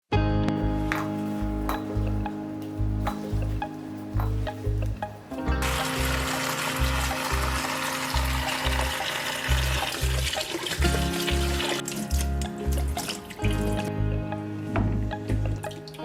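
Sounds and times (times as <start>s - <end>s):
background music with steady beat: 0.1s - 16.0s
water running from a tap: 5.6s - 13.6s.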